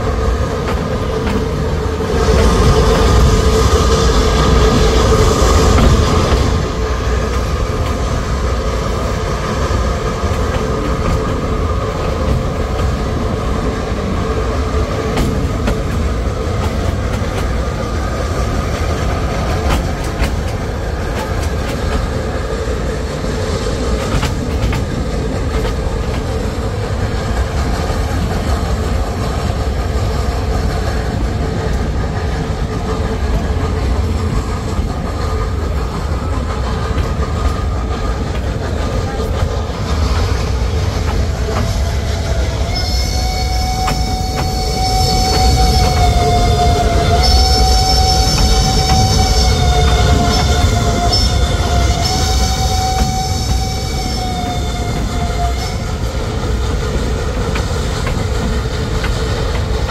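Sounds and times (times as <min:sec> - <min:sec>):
train wagons rumbling: 0:00.0 - 0:59.9
wheels clattering over rails: 0:00.0 - 0:59.9.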